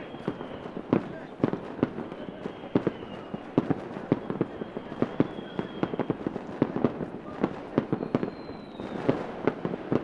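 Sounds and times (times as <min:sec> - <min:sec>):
faint high whistle: 0:00.0 - 0:00.8, 0:02.0 - 0:06.2, 0:07.8 - 0:09.1
fireworks banging and popping: 0:00.0 - 0:10.0.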